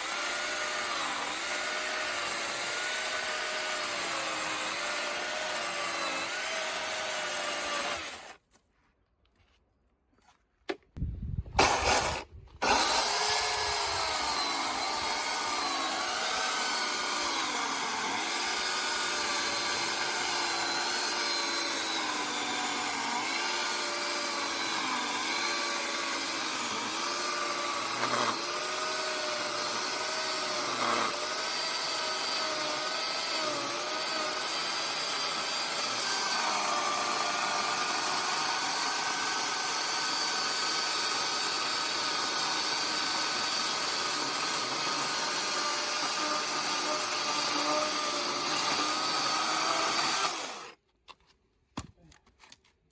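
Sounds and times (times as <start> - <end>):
chainsaw cutting logs: 0.0 - 8.4, 11.6 - 50.8.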